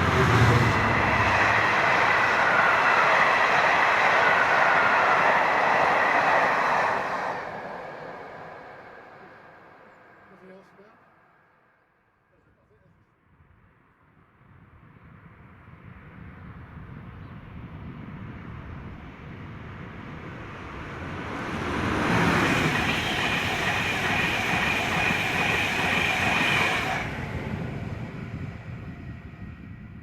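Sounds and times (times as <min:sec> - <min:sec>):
train passing: 0:00.0 - 0:11.8, 0:15.8 - 0:30.0
train wheels ringing on rails: 0:22.0 - 0:27.1.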